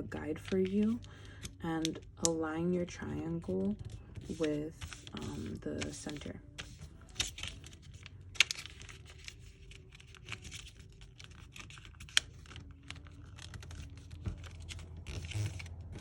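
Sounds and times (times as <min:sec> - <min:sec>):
paper being folded and creased: 0:03.4 - 0:16.0.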